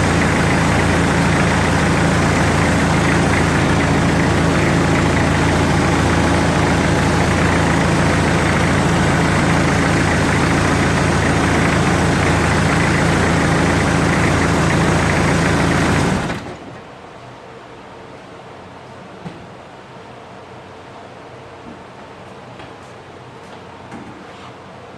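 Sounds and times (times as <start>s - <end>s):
diesel engine idling: 0.0s - 16.7s.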